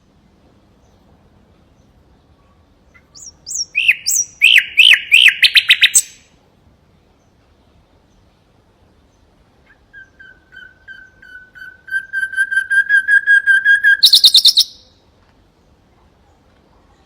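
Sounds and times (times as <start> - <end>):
nightingale singing: 2.9 - 6.3, 9.1 - 15.0.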